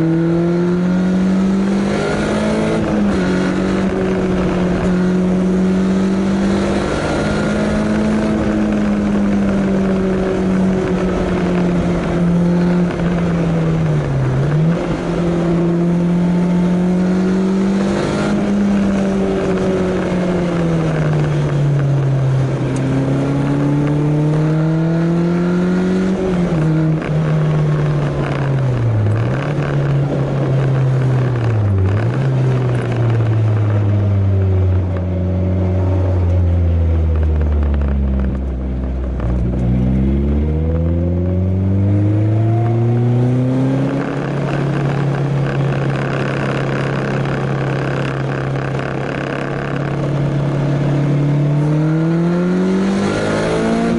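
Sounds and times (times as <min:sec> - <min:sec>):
sports car engine accelerating: 0:00.0 - 0:53.9
wind and road noise: 0:00.0 - 0:53.9.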